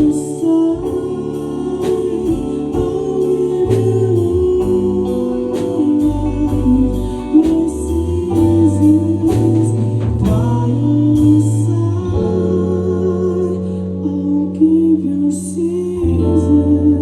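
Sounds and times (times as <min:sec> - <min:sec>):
band playing a song: 0:00.0 - 0:12.6
person singing: 0:00.0 - 0:17.0.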